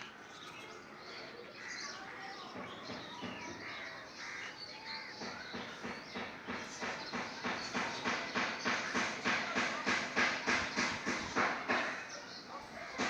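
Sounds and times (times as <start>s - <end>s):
birds calling: 0.0s - 13.0s
busy background noise: 0.0s - 13.0s.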